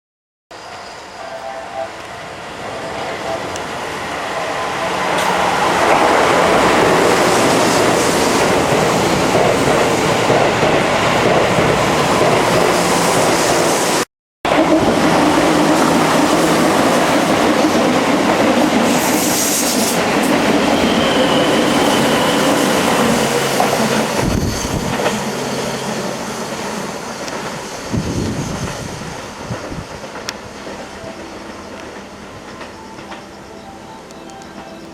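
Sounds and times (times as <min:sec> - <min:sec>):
electric train running: 0:00.6 - 0:34.9.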